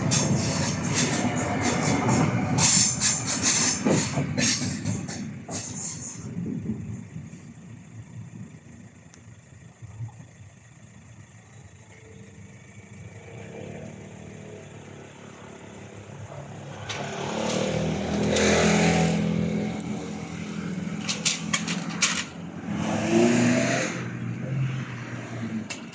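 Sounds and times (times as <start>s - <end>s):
train rushing past: 0.0s - 7.0s, 16.2s - 25.4s
train wheel clacks: 0.0s - 7.4s, 16.3s - 22.4s
train motor hum: 0.0s - 25.9s.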